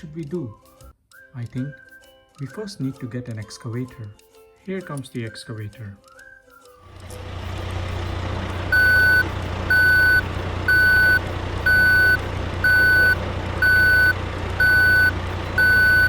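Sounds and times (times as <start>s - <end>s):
heavy vehicle engine rumbling: 6.9s - 16.0s
back-up alarm beeping: 8.7s - 16.0s.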